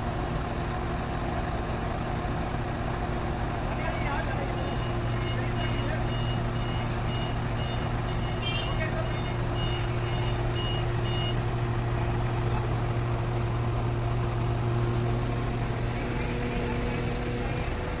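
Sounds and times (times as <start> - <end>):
diesel engine droning: 0.0 - 18.0
high warning beeper: 4.4 - 11.4.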